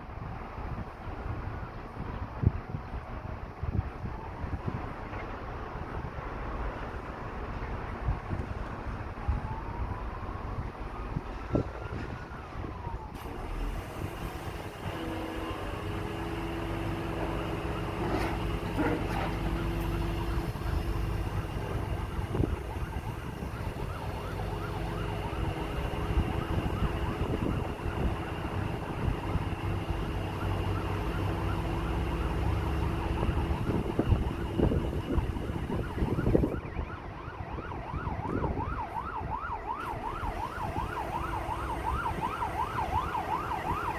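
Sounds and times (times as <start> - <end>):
truck engine running: 13.4 - 36.6
warbling siren-like tone: 19.3 - 43.9.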